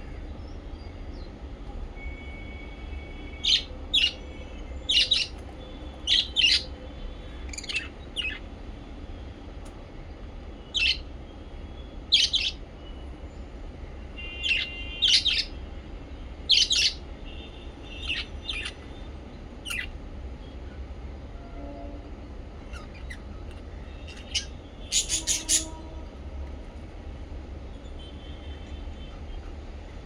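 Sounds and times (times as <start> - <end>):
parrots chirping: 3.3 - 8.5, 10.7 - 11.1, 12.1 - 12.6, 14.2 - 15.6, 16.4 - 20.0, 22.6 - 25.9.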